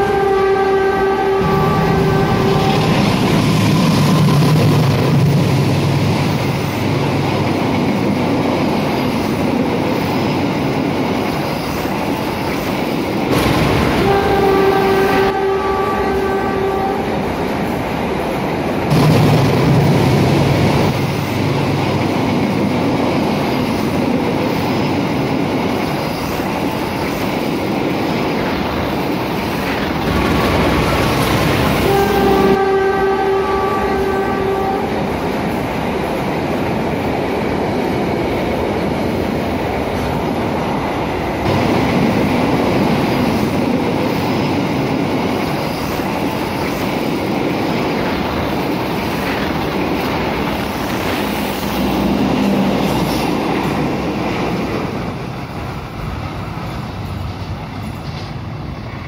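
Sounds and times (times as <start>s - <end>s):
train horn: 0.0s - 4.7s, 13.3s - 17.4s, 30.2s - 35.2s
rumble of train wheels on rails: 0.0s - 59.0s.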